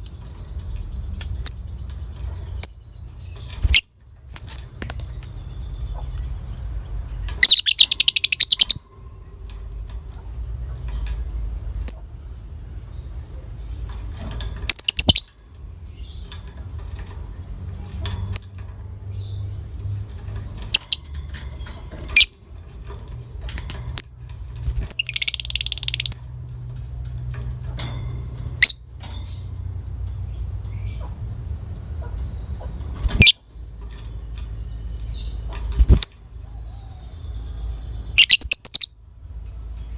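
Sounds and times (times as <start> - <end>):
bird rattling trills: 0.0 - 39.9
bird sharp chirps: 5.1 - 8.9, 14.5 - 15.3, 23.8 - 26.3, 34.2 - 39.9.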